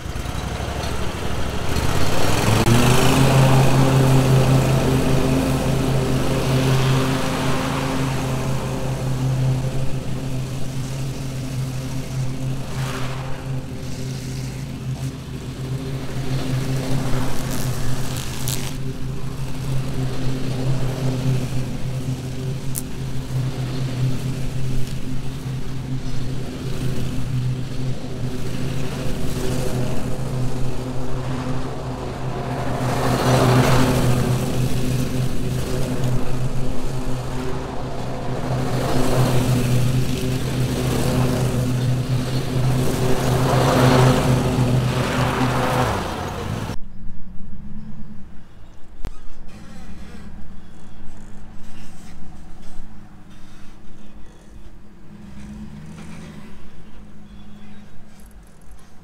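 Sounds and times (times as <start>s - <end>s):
engine running: 0.0s - 46.8s, 48.4s - 59.0s.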